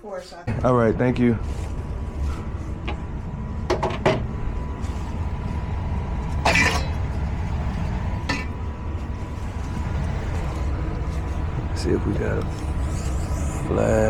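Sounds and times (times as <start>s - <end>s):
steady low rumble: 0.4s - 14.0s
metallic clatter: 6.3s - 7.4s.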